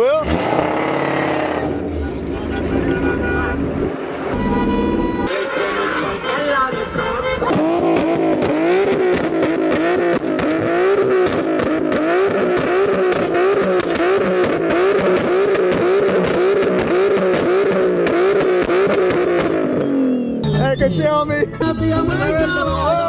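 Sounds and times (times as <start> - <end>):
car engine revving in blips: 0.0 - 21.6.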